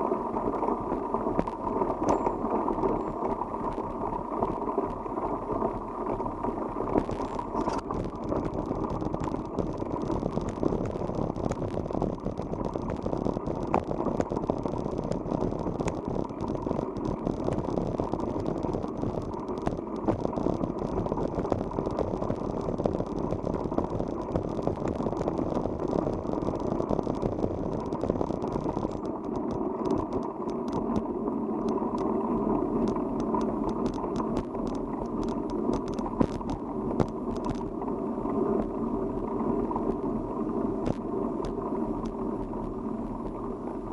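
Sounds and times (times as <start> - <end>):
bicycle tyres on unpaved road: 0.0 - 43.9
small rattling clicks: 7.0 - 32.1, 32.7 - 37.7.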